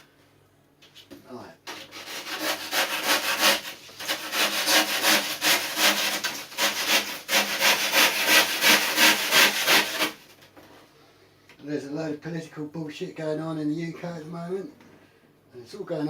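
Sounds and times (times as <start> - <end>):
hand sanding foam: 1.7 - 10.2.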